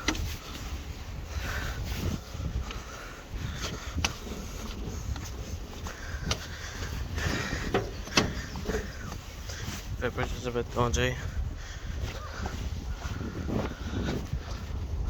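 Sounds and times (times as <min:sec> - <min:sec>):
microphone rumble: 0:00.0 - 0:15.0.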